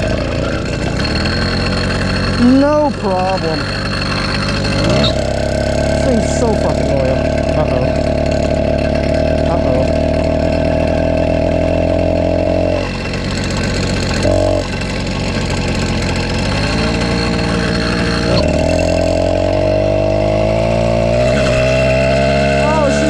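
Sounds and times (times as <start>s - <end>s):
small motorbike engine running: 0.0s - 23.0s.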